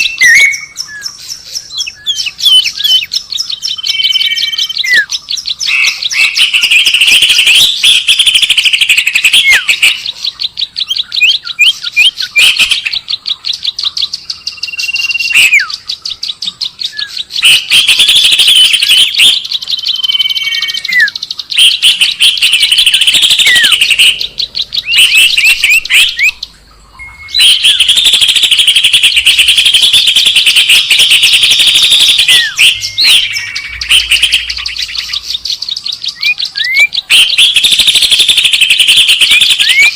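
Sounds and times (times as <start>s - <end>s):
songbird chirping trills: 0.0s - 39.9s
downward whistled notes: 27.0s - 35.3s.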